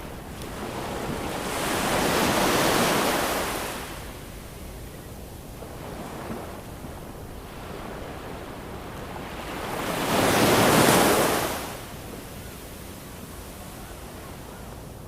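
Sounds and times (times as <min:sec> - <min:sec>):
surf wash: 0:00.0 - 0:04.3, 0:05.6 - 0:12.2.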